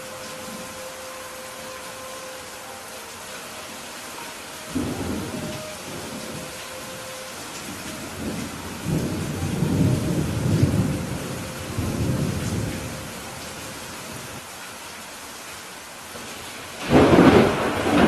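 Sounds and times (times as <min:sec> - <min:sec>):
steady rain: 0:00.0 - 0:18.0
thunder rumbling: 0:04.7 - 0:13.5, 0:16.8 - 0:18.0.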